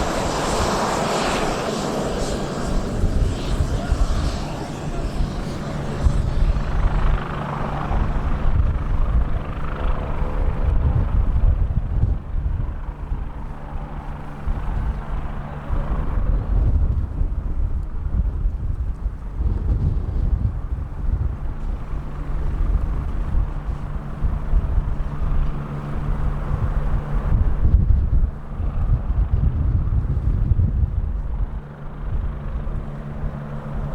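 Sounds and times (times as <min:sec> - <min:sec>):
hiss: 0:00.0 - 0:06.8
steady hum: 0:00.0 - 0:09.8
engine drone: 0:00.0 - 0:16.9
jet engine rumble: 0:00.0 - 0:33.9
wind buffeting microphone: 0:00.0 - 0:33.9.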